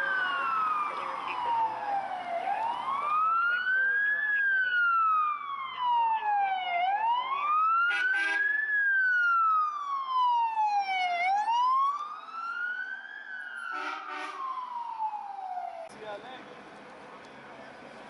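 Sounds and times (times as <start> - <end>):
fire engine siren wailing: 0.0 - 16.0
horn blasts: 13.7 - 14.4.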